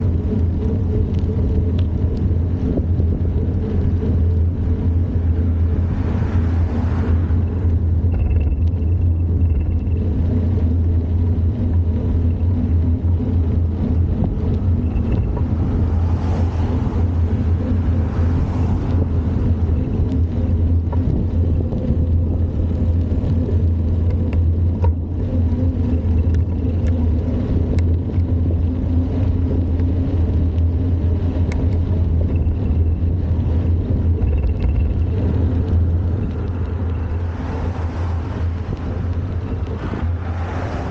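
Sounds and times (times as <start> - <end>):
bicycle tyres rolling on trail: 0.0 - 40.9
wind buffeting microphone: 0.0 - 40.9.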